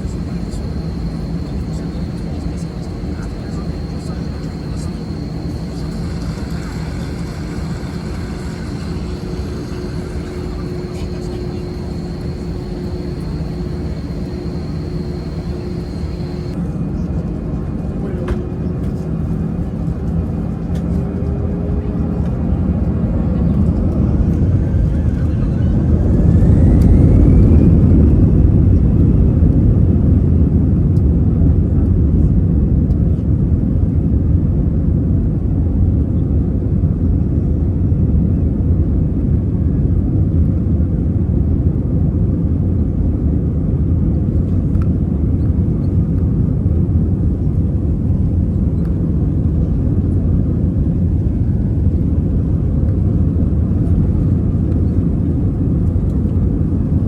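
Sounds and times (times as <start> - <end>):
jet engines rumbling: 0.0 - 16.6, 44.3 - 57.0.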